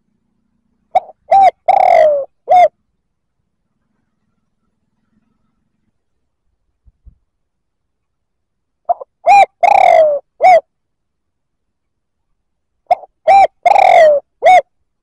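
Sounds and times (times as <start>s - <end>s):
dove cooing: 0.7s - 2.8s, 8.9s - 10.7s, 12.9s - 14.7s.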